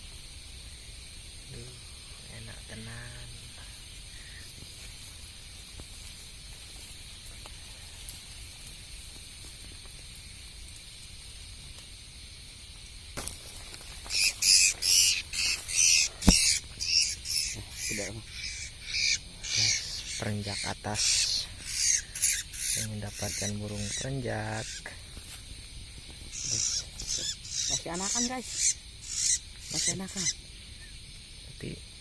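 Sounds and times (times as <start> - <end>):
night insects chorus: 0.0 - 32.0
young bird squawking harshly: 14.1 - 24.9, 26.3 - 30.4.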